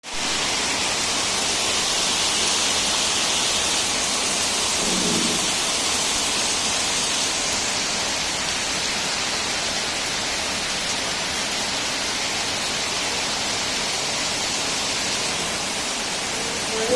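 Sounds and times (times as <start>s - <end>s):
heavy rain pouring: 0.0s - 16.9s
low rumble: 4.8s - 5.7s.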